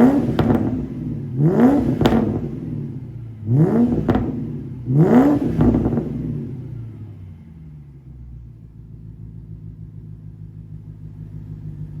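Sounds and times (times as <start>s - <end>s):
car engine revving: 0.0s - 8.7s
car engine idling: 0.0s - 12.0s.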